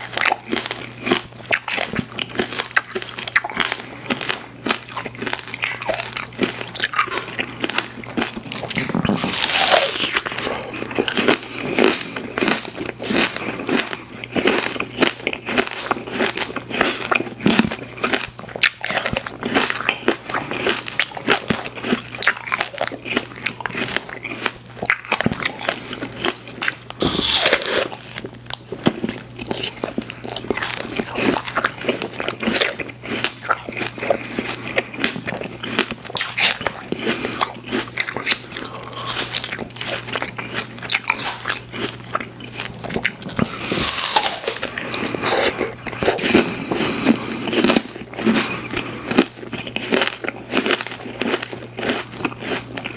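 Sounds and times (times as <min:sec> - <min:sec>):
person chewing sweets: 0:00.0 - 0:52.9
loud bites: 0:27.0 - 0:28.0.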